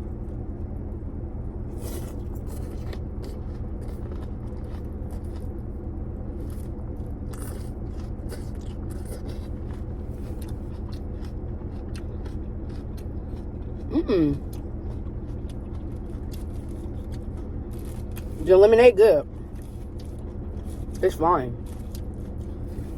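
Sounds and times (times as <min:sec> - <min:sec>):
steady low hum: 0:00.0 - 0:22.9
chewing: 0:01.8 - 0:18.4, 0:19.3 - 0:22.9.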